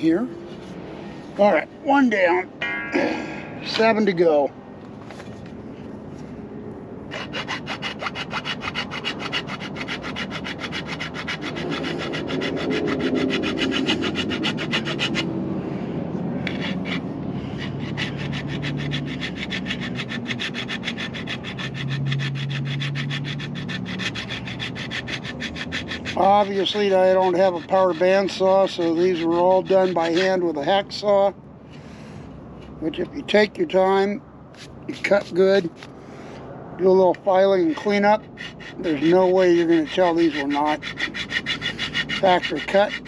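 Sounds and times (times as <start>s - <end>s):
hacksaw cutting metal: 7.1s - 15.3s, 16.4s - 30.4s, 37.2s - 43.0s.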